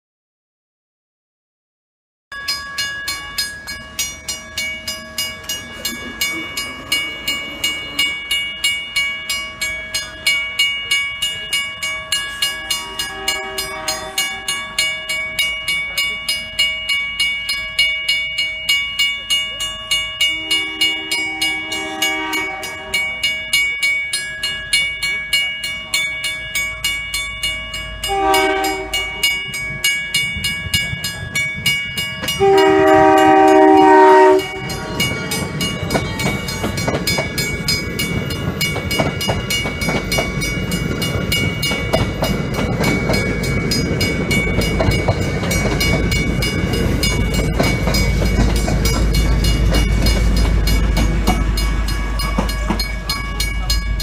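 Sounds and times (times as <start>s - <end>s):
railroad crossing bell ringing: 2.3s - 54.0s
train wheels rumbling on rails: 3.1s - 54.0s
train horn blasts: 12.8s - 14.8s, 20.3s - 23.2s, 28.1s - 29.4s, 32.4s - 34.8s.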